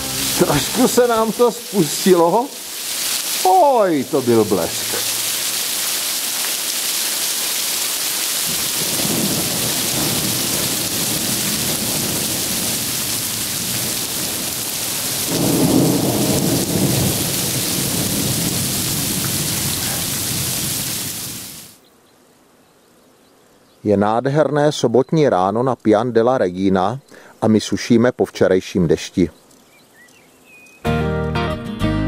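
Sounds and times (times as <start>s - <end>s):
heavy rain: 0.0s - 21.8s
thunder rumbling: 8.4s - 21.5s.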